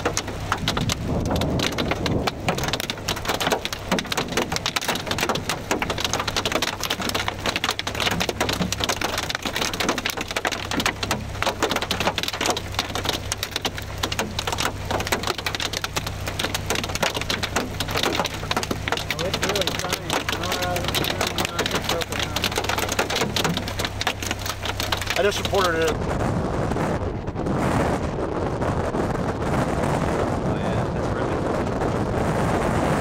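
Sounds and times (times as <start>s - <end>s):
rain drops ticking on surface: 0.0s - 26.1s
low rumble: 0.0s - 33.0s.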